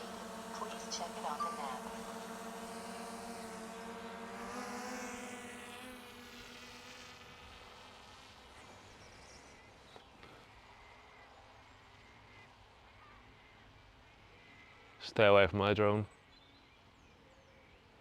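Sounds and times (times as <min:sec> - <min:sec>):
drone propellers buzzing: 0:00.0 - 0:09.8.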